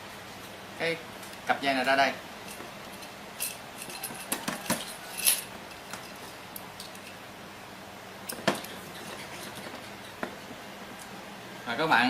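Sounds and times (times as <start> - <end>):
clicks and clinks of small parts: 2.5 - 7.2.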